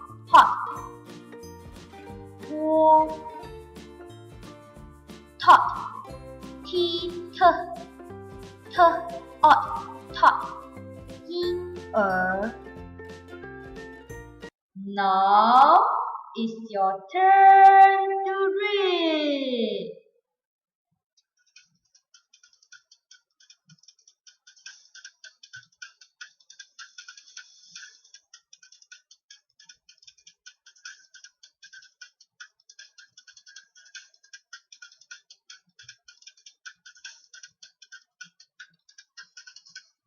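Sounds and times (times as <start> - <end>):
rapid light clicking: 21.4 - 40.0.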